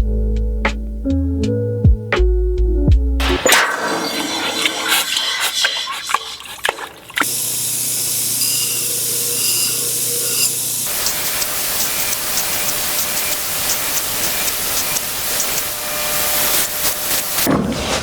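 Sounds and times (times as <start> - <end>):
loud hissing noise: 7.2 - 17.5.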